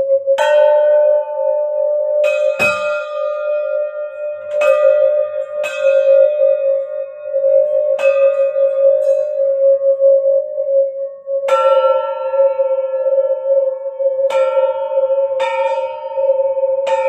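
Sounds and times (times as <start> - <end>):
higher-pitched bowl struck: 0.0 - 10.8
singing bowl steady ringing: 0.0 - 17.0.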